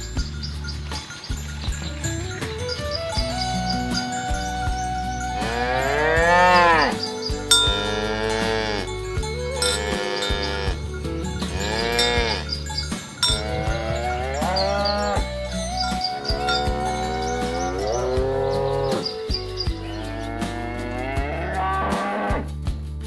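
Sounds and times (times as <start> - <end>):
cattle mooing: 5.4 - 12.6, 13.3 - 15.2, 15.8 - 22.4.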